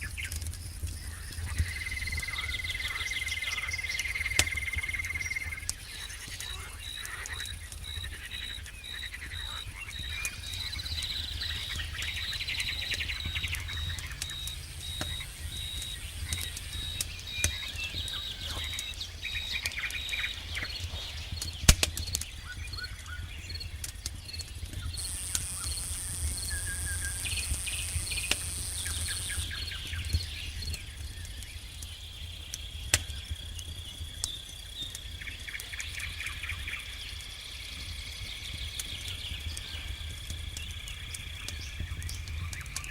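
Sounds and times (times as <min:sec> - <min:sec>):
campfire crackling and popping: 0:00.0 - 0:42.9
insects chirping: 0:00.0 - 0:42.9
rapid trilling calls: 0:02.1 - 0:21.5
high shrill insect buzz: 0:25.0 - 0:29.6.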